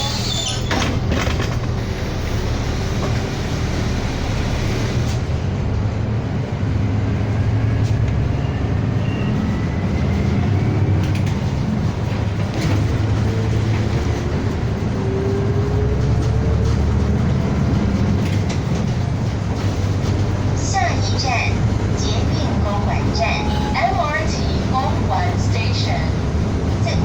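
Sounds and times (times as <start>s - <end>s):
bus engine and road rumble: 0.0s - 27.0s.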